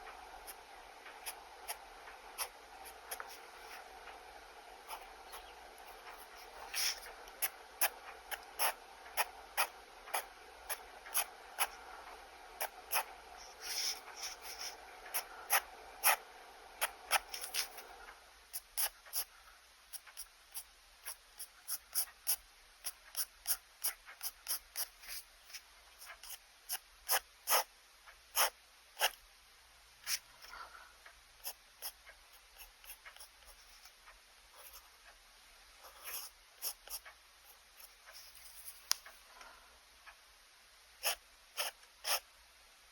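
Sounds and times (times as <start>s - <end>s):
pen scratching on paper: 0.4s - 4.1s, 4.8s - 11.8s, 12.6s - 17.9s, 19.9s - 27.7s, 28.3s - 29.2s, 34.6s - 35.0s, 35.8s - 38.9s, 41.0s - 42.2s.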